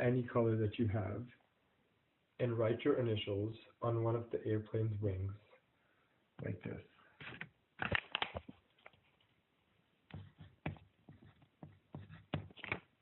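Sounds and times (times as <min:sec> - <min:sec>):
pencil scratching on paper: 0:10.1 - 0:12.7.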